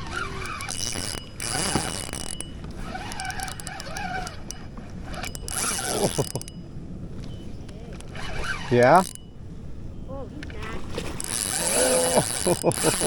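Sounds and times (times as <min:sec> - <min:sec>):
fishing reel drag buzzing: 0:00.0 - 0:06.7, 0:07.9 - 0:09.4, 0:11.0 - 0:13.0.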